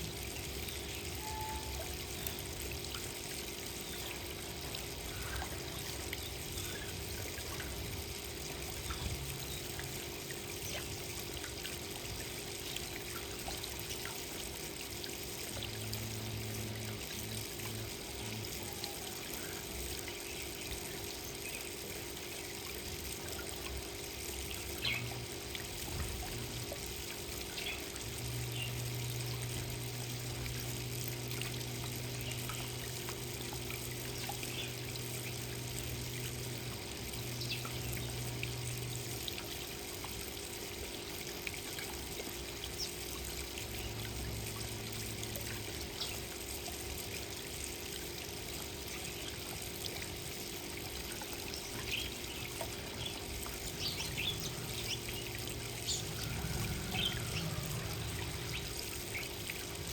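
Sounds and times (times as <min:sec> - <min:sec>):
water trickling: 0:00.0 - 0:59.9
low hum: 0:53.4 - 0:59.9.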